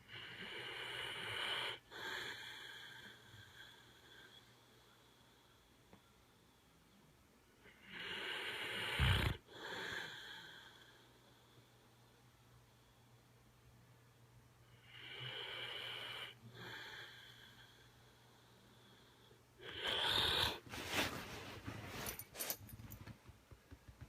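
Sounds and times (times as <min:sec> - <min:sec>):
dog snoring with wheeze: 0:00.1 - 0:04.4, 0:07.6 - 0:11.0, 0:14.8 - 0:17.6, 0:18.8 - 0:21.1.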